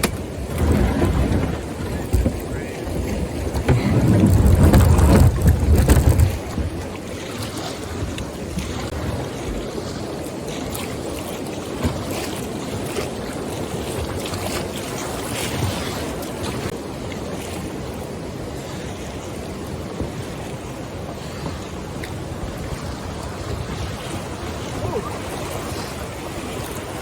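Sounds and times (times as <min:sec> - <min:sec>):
sharp splashes or knocks: 0:00.0 - 0:06.9
river water rushing and splashing: 0:00.0 - 0:27.0.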